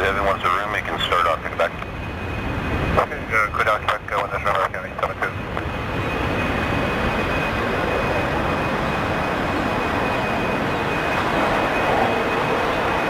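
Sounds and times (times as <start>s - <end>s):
aircraft engines rumbling: 0.0s - 13.0s
high engine whine: 0.0s - 13.0s.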